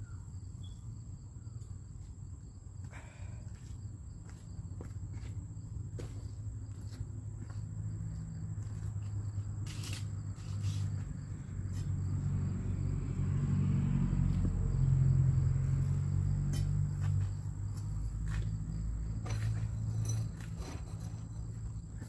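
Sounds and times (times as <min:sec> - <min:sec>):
vehicle engine rumbling: 0:01.1 - 0:22.0.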